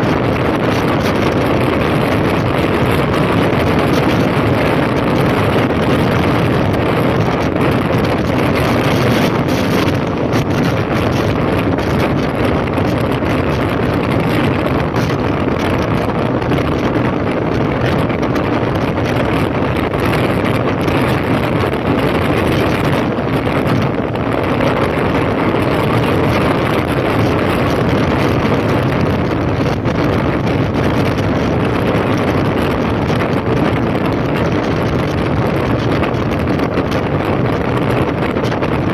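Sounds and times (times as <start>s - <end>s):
motorcycle engine running: 0.0s - 38.9s
wind rushing over microphone: 0.0s - 38.9s.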